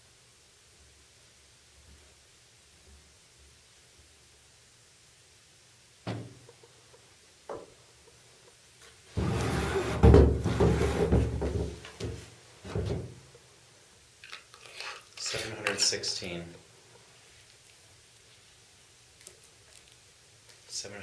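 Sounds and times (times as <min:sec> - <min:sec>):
loud scraping handling noise: 0:09.1 - 0:11.4.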